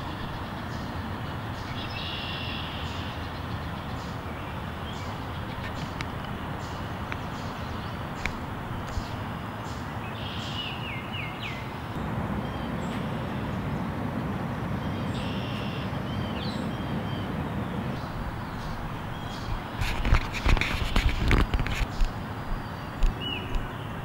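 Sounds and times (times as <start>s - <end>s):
small birds calling: 0.0s - 13.6s, 14.8s - 24.0s
outdoor background hiss: 0.0s - 24.0s
knocks and rustles: 19.4s - 22.2s.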